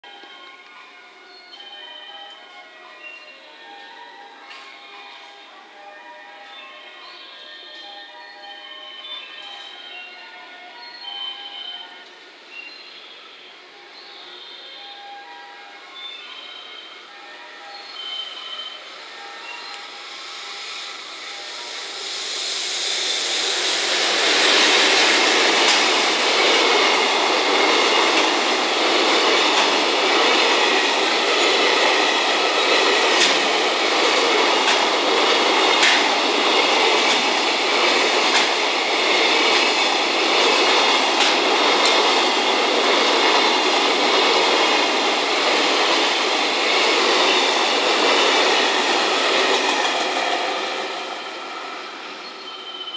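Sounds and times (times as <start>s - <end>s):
freight train wheels rumbling: 18.3s - 52.9s
wheels clicking over rail joints: 34.6s - 37.4s.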